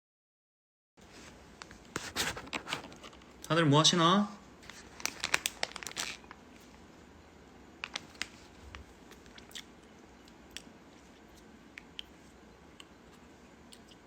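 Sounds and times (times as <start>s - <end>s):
person chewing crunchy snack: 9.1s - 12.1s.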